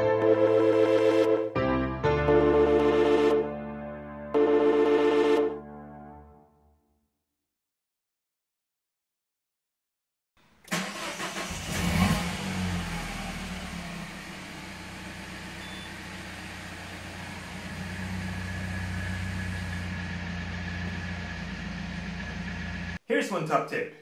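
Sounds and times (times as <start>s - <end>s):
car engine starting and idling: 10.4s - 23.0s.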